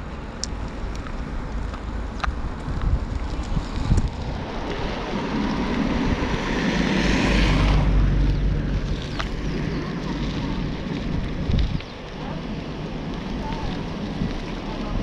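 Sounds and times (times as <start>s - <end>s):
wind on microphone: 0.7s - 15.0s
vehicle engine passing: 3.2s - 15.0s.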